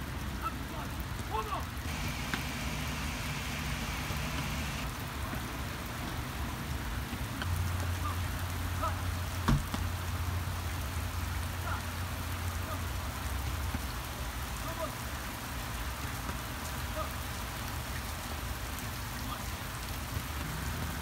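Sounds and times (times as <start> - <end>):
rain falling on grass and pavement: 0.0 - 21.0
low steady hum: 1.9 - 4.9.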